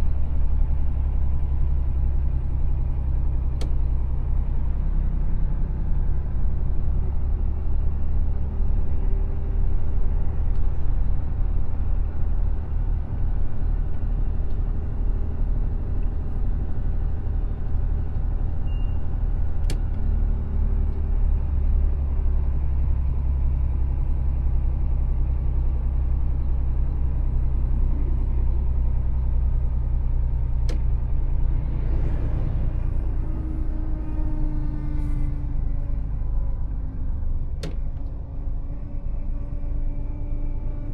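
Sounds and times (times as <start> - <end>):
truck engine and rolling noise: 0.0 - 40.9.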